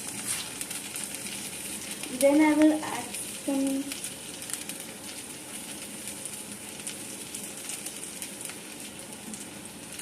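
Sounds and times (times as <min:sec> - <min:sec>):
oil sizzling in a frying pan: 0:00.0 - 0:10.0.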